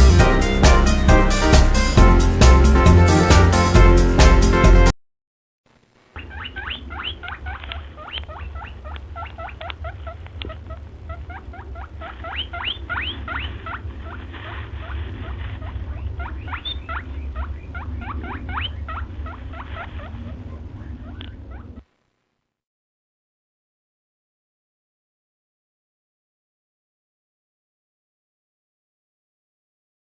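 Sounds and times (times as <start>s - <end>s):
steady low rumble: 0.0s - 4.9s
small birds chirping: 6.2s - 21.8s.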